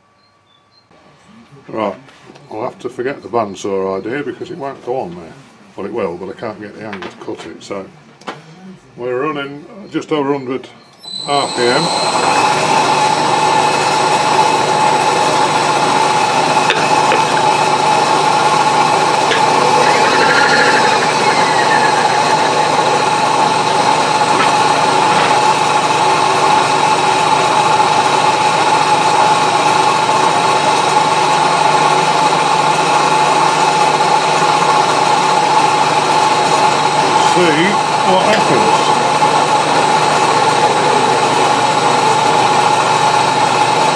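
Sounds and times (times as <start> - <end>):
milling machine humming: 11.4 - 43.9.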